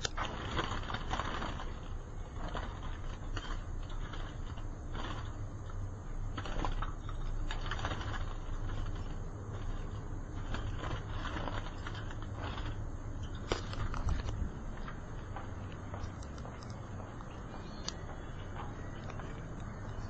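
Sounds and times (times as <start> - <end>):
light clicks and rustles: 6.4 - 20.0.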